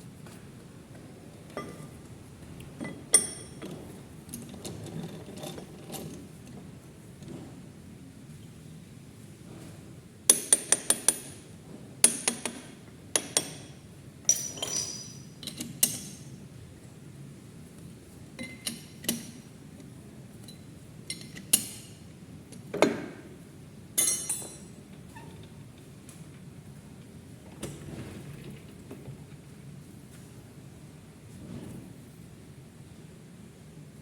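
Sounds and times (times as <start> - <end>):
metal tools clinking and tapping: 14.3 - 16.2, 18.4 - 19.4, 20.4 - 21.9, 24.0 - 24.7.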